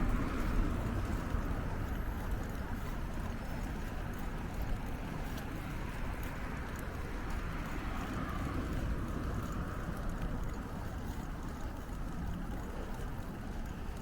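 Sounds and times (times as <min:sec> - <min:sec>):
bicycle tyres rolling on path: 0:00.0 - 0:14.0.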